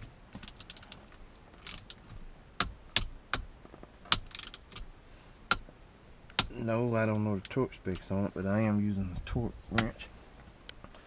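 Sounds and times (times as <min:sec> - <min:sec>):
sharp metallic clicks: 0:00.4 - 0:02.0, 0:02.6 - 0:04.9, 0:05.5 - 0:05.7, 0:06.3 - 0:06.6, 0:09.7 - 0:10.0.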